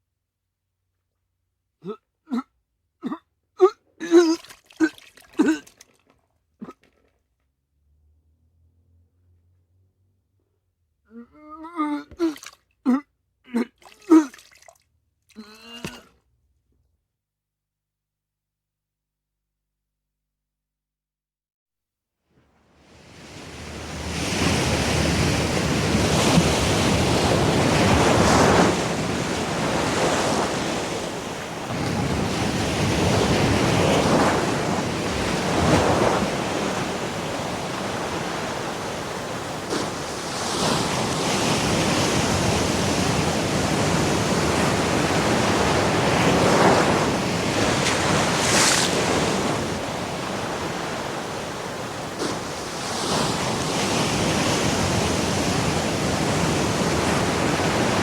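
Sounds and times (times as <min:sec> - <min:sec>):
ocean waves breaking: 0:22.6 - 0:58.0.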